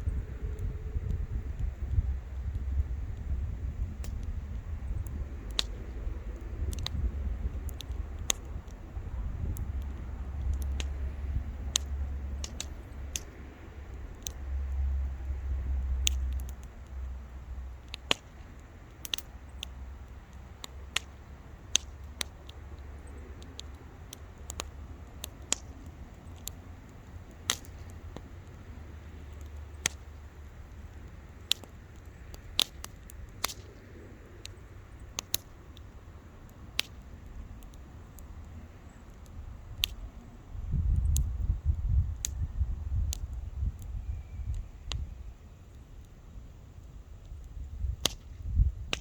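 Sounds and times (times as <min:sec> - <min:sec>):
low rumble: 0:00.0 - 0:17.8
bonfire crackling and popping: 0:00.0 - 0:49.0.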